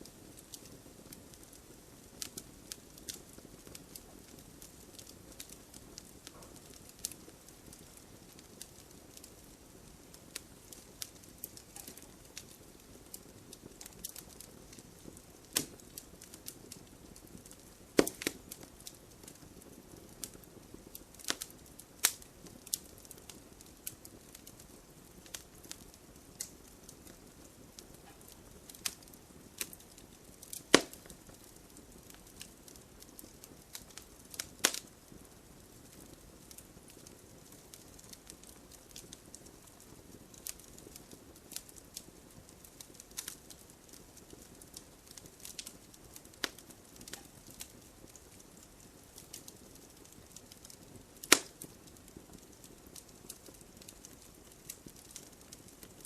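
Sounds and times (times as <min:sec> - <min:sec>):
wood fire crackling: 0:00.0 - 0:56.0
loud sharp fire pops: 0:17.4 - 0:18.7, 0:27.8 - 0:32.4, 0:51.2 - 0:51.8.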